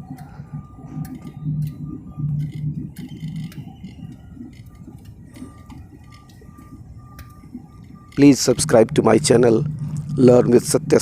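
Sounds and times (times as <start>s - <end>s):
low rumble of jet engines: 0.0s - 11.0s
muffled voices: 8.1s - 11.0s.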